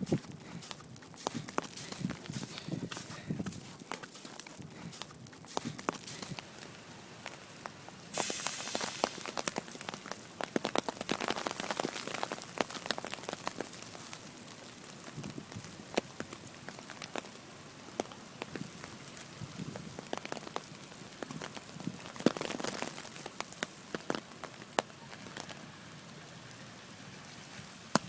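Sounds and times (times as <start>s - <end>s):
wet snow pattering: 0.0s - 28.0s
rush of hiss: 8.1s - 9.4s.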